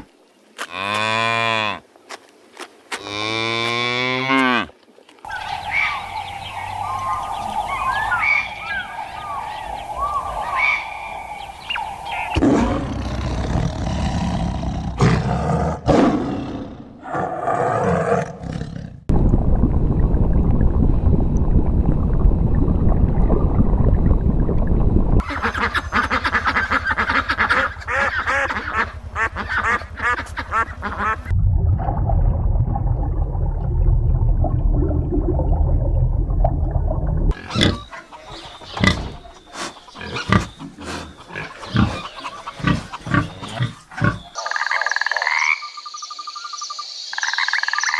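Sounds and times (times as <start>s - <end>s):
animal calls: 5.3s - 13.3s.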